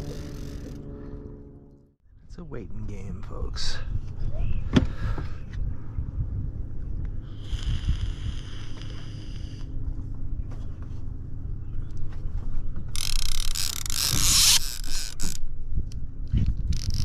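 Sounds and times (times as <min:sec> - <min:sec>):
boat motor running: 0:00.0 - 0:02.0
high whine: 0:00.0 - 0:04.0.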